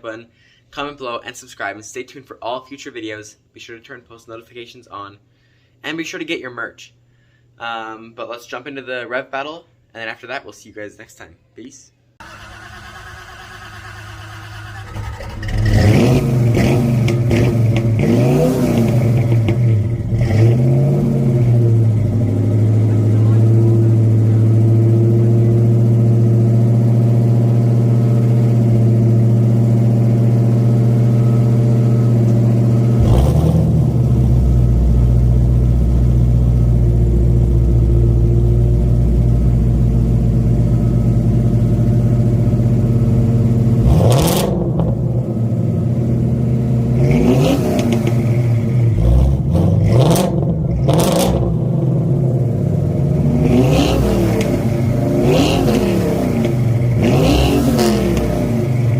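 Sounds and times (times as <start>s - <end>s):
car engines idling and revving: 13.5s - 58.9s
deeper engine rumble: 14.7s - 58.9s.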